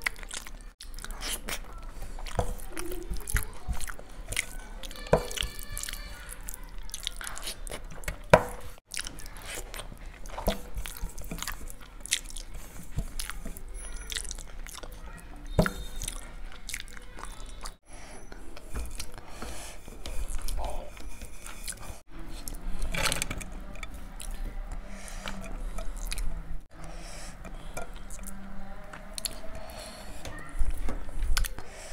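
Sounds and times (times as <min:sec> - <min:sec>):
person chewing: 0:00.0 - 0:31.9
sharp wet mouth clicks: 0:31.3 - 0:31.6.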